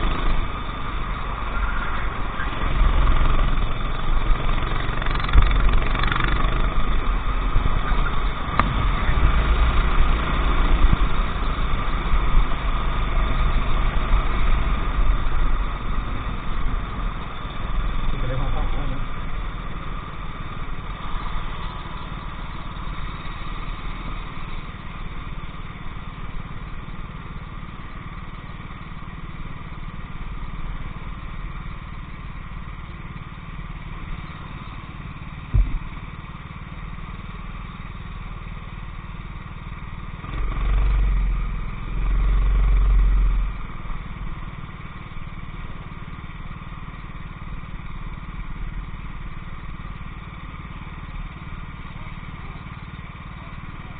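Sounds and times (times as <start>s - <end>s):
heavy low rumbles: 0.0s - 25.4s, 35.4s - 36.1s
go-kart engine running: 0.0s - 53.9s.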